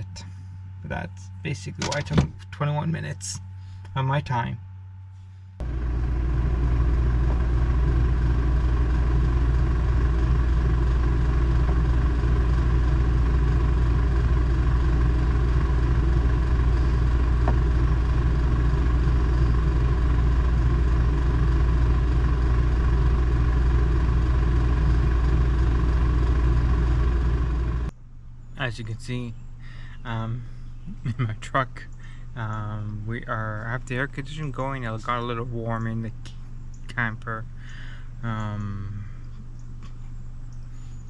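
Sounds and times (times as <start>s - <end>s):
air-conditioning blower running: 0.0s - 28.0s, 28.6s - 41.0s
truck engine idling: 5.1s - 27.9s.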